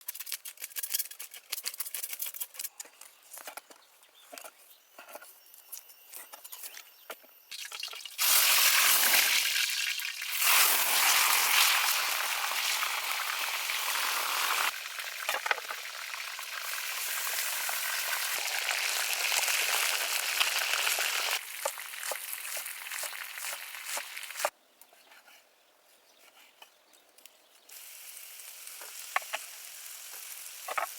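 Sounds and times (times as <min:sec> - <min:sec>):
food sizzling in hot oil: 0:07.5 - 0:24.5, 0:27.7 - 0:30.9.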